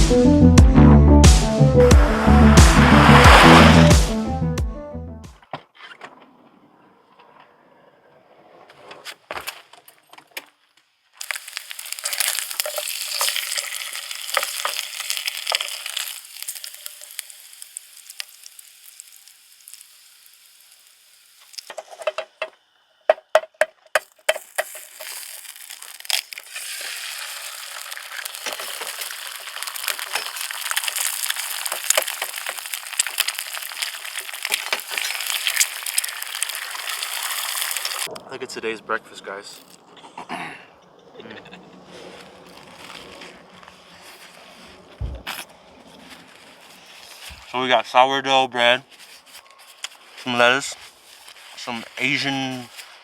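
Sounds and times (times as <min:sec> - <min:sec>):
food sizzling in a frying pan: 0:11.2 - 0:21.8, 0:24.4 - 0:38.1.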